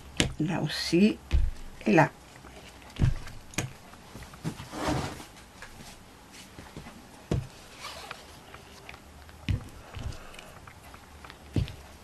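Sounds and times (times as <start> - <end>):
light taps and knocks: 9.4 - 10.7, 11.5 - 11.8.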